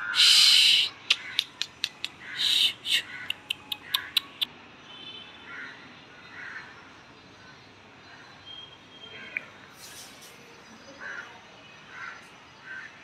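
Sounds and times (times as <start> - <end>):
faint short bird calls: 0.0 - 4.5
harsh bird call: 0.0 - 4.5
sharp clicks: 1.0 - 2.2, 3.0 - 4.5.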